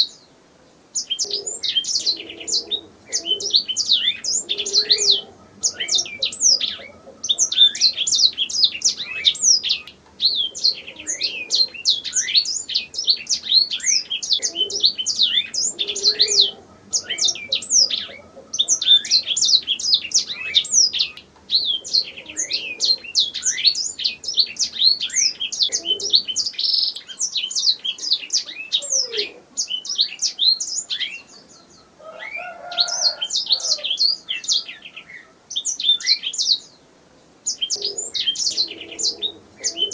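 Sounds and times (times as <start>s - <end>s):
canary singing trills: 0.9s - 36.8s, 37.4s - 39.9s.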